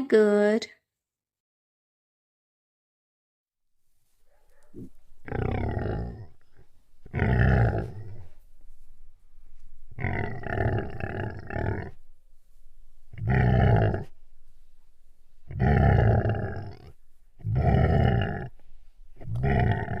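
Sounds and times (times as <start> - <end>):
tiger roaring: 4.8 - 8.4, 9.9 - 12.0, 13.1 - 14.2, 15.4 - 18.6, 19.2 - 20.0.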